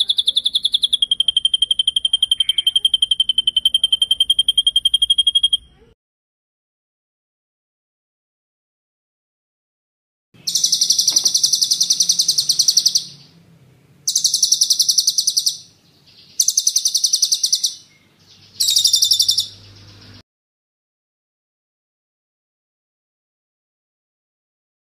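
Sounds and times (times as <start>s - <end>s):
songbird trilling: 0.0s - 5.9s, 10.4s - 13.4s, 14.0s - 20.2s.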